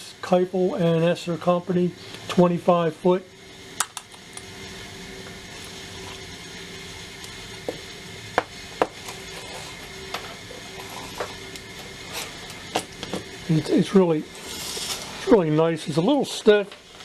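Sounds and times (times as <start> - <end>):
tape measure rubbing rasp: 14.4 - 15.2.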